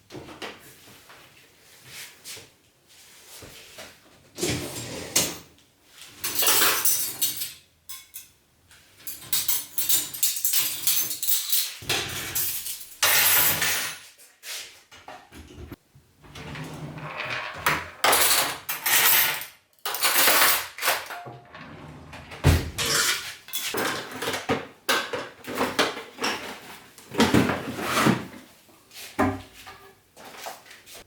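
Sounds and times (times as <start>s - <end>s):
household objects clattering: 6.1s - 8.3s, 9.0s - 14.1s, 15.1s - 28.5s.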